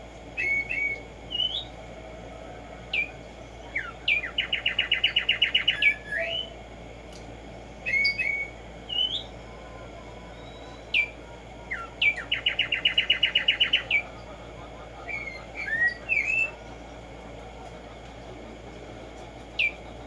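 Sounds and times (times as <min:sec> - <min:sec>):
sparrow singing whistled notes: 0:00.4 - 0:01.7, 0:03.0 - 0:06.6, 0:07.8 - 0:09.4, 0:10.3 - 0:14.1, 0:15.0 - 0:16.6, 0:19.6 - 0:19.9.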